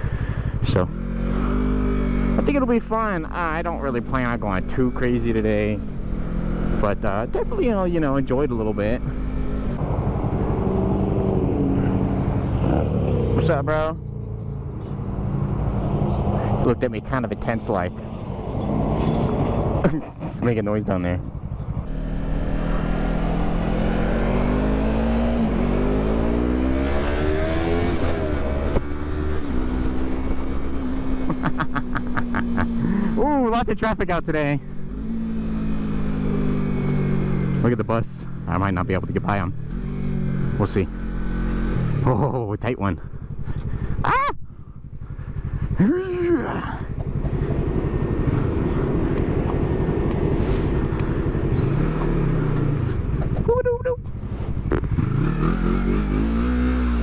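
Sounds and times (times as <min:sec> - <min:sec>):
motorcycle engine revving: 0:00.0 - 0:57.0
rider shouting: 0:43.8 - 0:44.6, 0:45.8 - 0:46.9.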